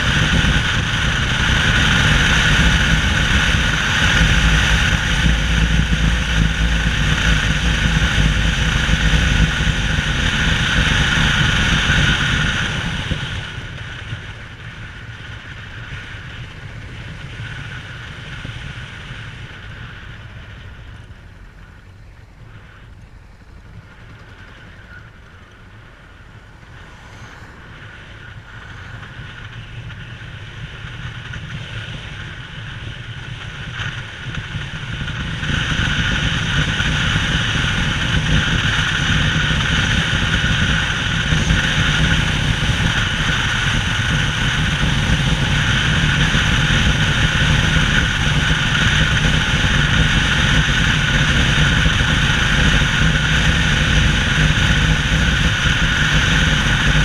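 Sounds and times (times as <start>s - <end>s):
small boat engine running: 0.0s - 57.0s
wind: 0.0s - 57.0s
water noise: 25.1s - 34.0s.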